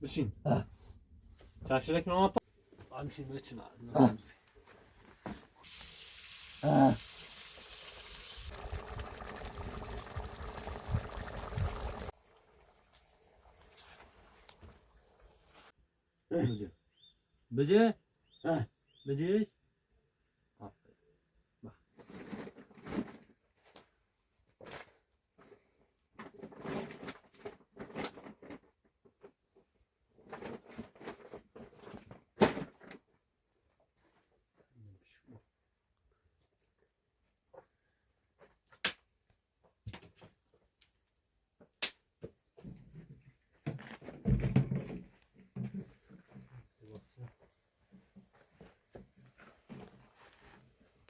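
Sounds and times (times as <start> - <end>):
water pouring: 5.6 - 15.7
rustling and handling noise: 42.4 - 51.0.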